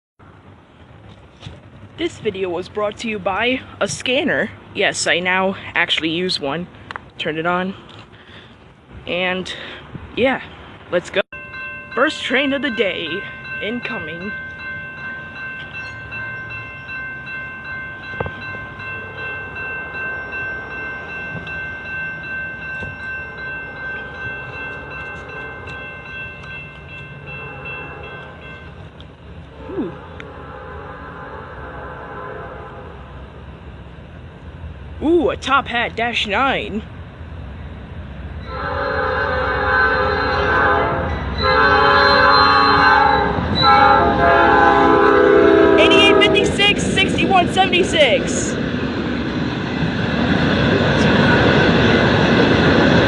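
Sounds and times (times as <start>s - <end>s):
train rumbling by: 0.2s - 53.0s
high ringing tone: 11.4s - 28.8s
locomotive horn blasts: 29.5s - 33.0s, 38.5s - 47.3s.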